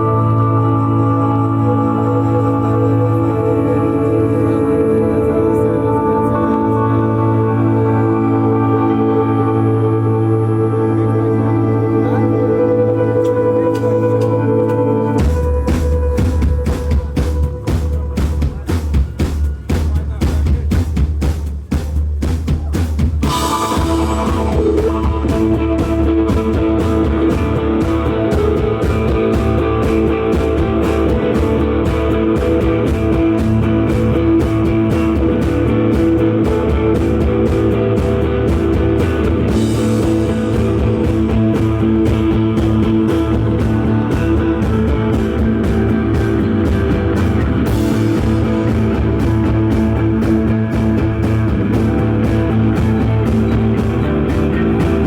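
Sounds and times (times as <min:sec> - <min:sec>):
droning electric guitars: 0:00.0 - 0:21.5, 0:23.2 - 0:55.0
rock band playing loudly: 0:00.0 - 0:55.0
steady drum beat: 0:13.2 - 0:55.0.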